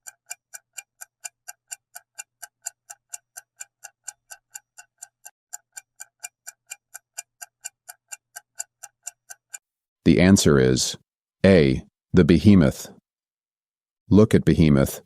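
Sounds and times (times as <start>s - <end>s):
clock ticking: 0.0s - 10.3s.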